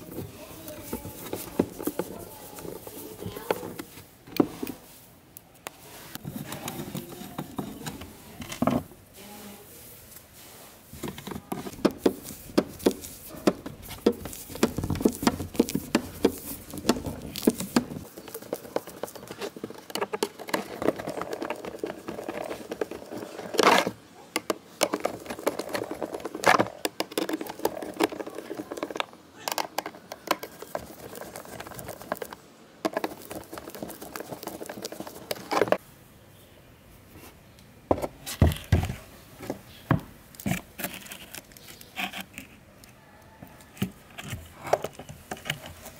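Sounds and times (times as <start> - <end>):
rustling: 0.0 - 36.0.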